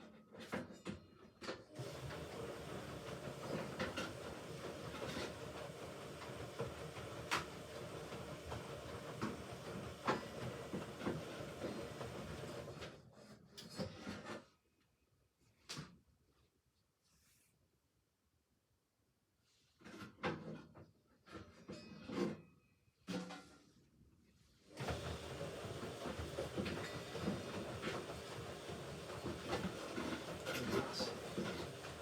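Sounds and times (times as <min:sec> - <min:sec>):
washing machine drum turning: 0:24.8 - 0:32.0.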